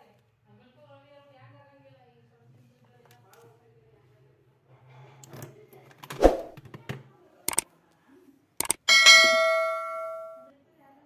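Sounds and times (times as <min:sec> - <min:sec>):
metallic clang ringing: 0:08.8 - 0:10.5.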